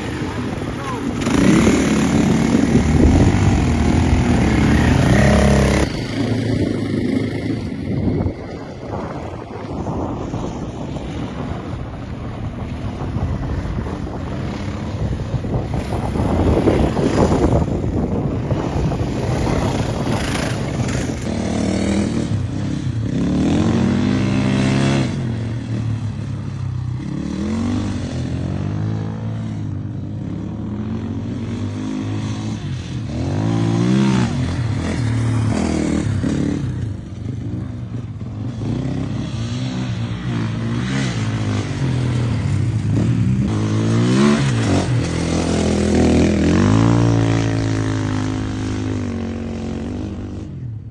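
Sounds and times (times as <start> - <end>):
motocross bike engine revving: 0.0 - 10.0, 30.4 - 50.5
wind noise: 0.0 - 50.9.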